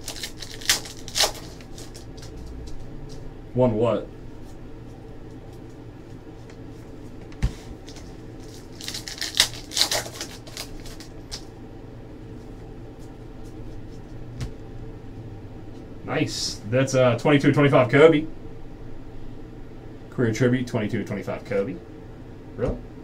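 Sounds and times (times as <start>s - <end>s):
foil wrapper crinkling: 0.0s - 3.2s, 7.8s - 11.5s
room hum: 0.0s - 23.0s.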